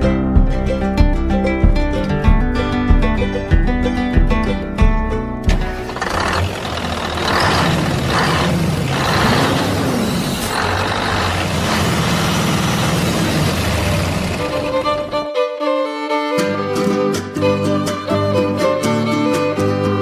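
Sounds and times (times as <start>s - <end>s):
engine-like rumble: 5.5s - 15.3s.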